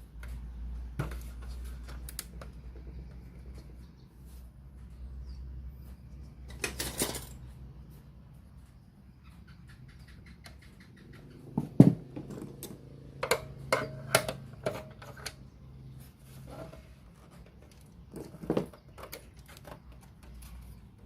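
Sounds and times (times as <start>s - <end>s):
hard objects clicking and knocking: 10.5s - 15.5s, 17.4s - 21.0s.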